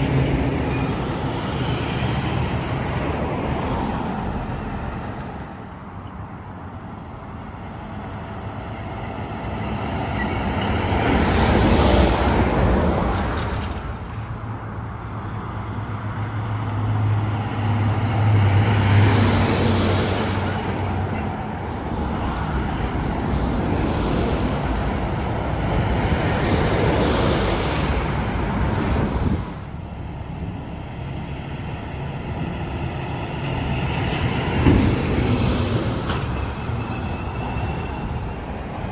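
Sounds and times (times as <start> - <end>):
traffic passing: 0.0 - 38.9
heavy truck engine drone: 14.3 - 38.9.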